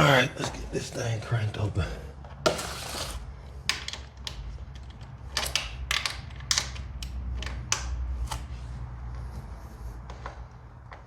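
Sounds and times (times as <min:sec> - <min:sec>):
steady low hum: 0:06.8 - 0:11.0.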